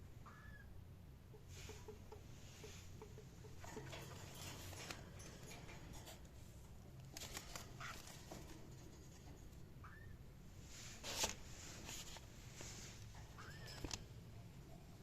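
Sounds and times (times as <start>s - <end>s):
faint bird chirp: 0.2s - 3.6s, 9.8s - 10.3s, 13.2s - 14.0s
scratching and rustling: 1.4s - 9.7s, 10.6s - 15.0s.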